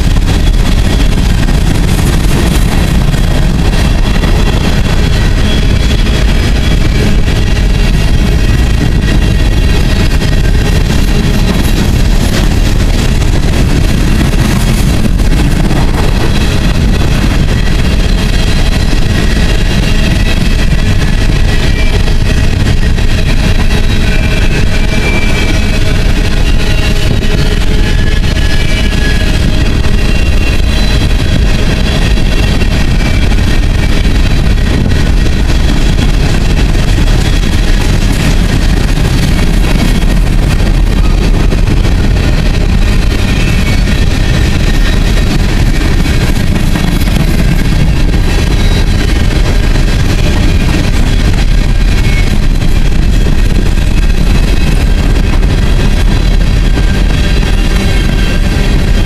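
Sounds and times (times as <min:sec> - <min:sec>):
train wheels rumbling on rail: 0:00.0 - 0:59.0
high-pitched wheel squeals: 0:16.2 - 0:35.0, 0:39.0 - 0:49.6, 0:50.3 - 0:53.5.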